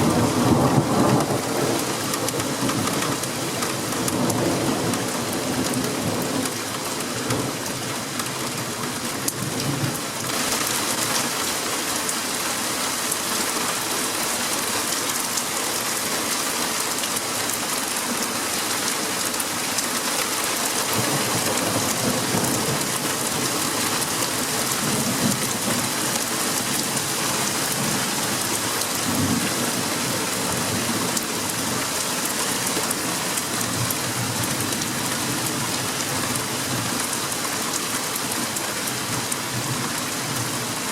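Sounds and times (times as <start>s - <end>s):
heavy rain hissing: 10.0s - 40.9s.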